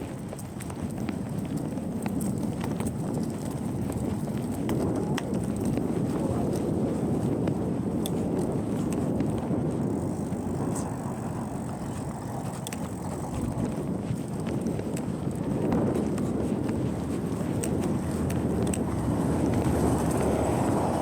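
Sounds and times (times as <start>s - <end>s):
bicycle tyres rolling on pavement: 0.0s - 21.0s
faint clicks: 8.0s - 15.1s, 17.3s - 20.4s.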